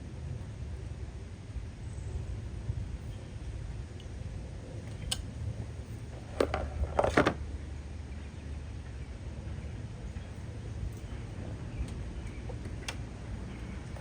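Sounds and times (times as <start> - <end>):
low steady rumble: 0.0 - 14.0
plastic clicks and knocks on engine: 6.1 - 7.4, 11.8 - 13.1.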